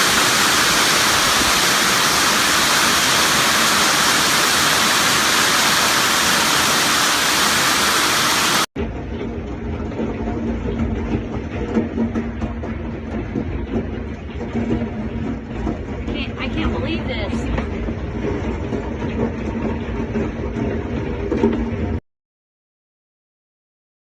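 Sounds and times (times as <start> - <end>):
heavy hail and rain roaring: 0.0 - 8.7, 12.6 - 21.8
low rumble: 0.0 - 22.0.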